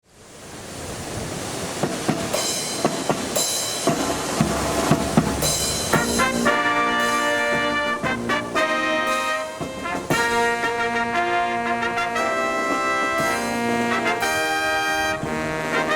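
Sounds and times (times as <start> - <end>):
wind rumbling on microphone: 0.0 - 7.0
marching drum strokes: 1.6 - 15.9
sustained brass chords: 4.2 - 15.9.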